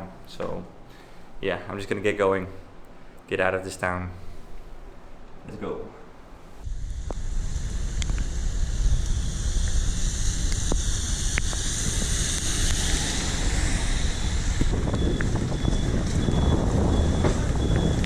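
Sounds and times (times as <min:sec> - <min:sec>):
steady high hiss: 0:00.0 - 0:18.0
wind rumbling on microphone: 0:06.5 - 0:18.0
sharp ticks: 0:07.0 - 0:16.5.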